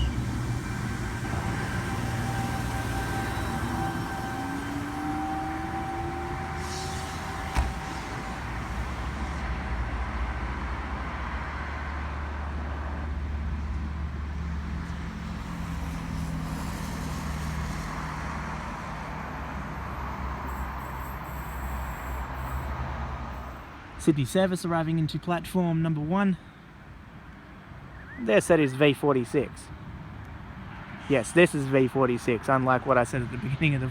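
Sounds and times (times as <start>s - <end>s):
electric train rumbling: 0.0s - 11.5s, 13.9s - 23.8s.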